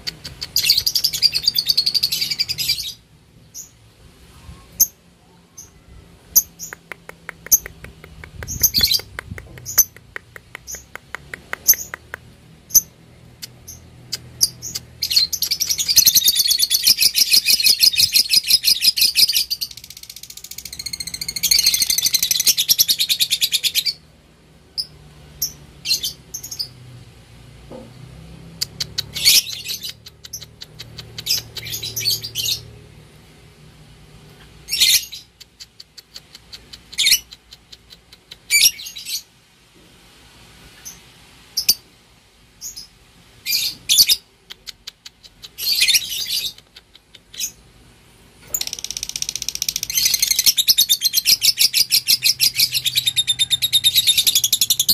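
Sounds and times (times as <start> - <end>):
lovebird chirps: 0.0 - 3.8, 4.6 - 10.0, 10.6 - 24.0, 24.8 - 26.8, 28.6 - 32.7, 34.6 - 39.3, 42.6 - 44.3, 45.2 - 47.6, 48.4 - 54.9.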